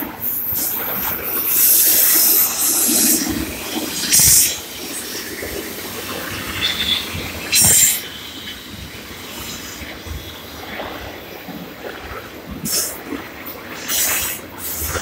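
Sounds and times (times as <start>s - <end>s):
freight train wheels clattering: 0.0s - 11.2s
loud hiss: 0.4s - 10.6s.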